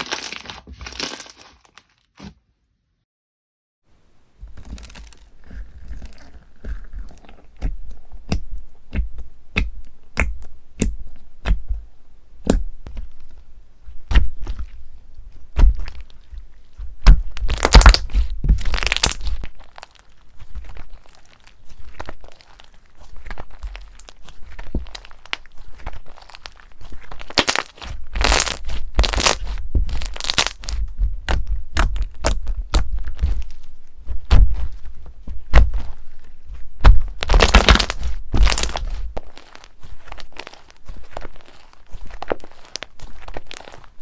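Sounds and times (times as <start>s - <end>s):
slime crunching: 0.0s - 2.3s, 4.6s - 10.9s, 17.0s - 44.0s
crunchy slime popping and cracking: 4.6s - 11.6s, 17.0s - 33.6s, 34.2s - 36.2s, 36.8s - 44.0s.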